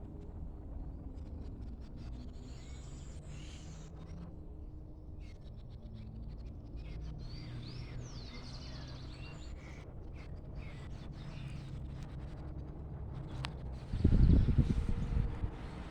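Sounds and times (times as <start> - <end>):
low steady rumble: 12.7 - 15.9.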